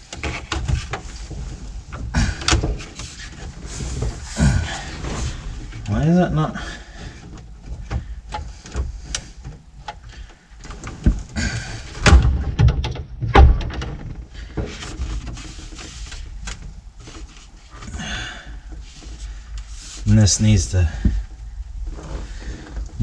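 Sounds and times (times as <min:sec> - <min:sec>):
plastic parts clicking and knocking: 0:00.0 - 0:04.2, 0:07.2 - 0:17.9
loud thumps: 0:11.0 - 0:14.8.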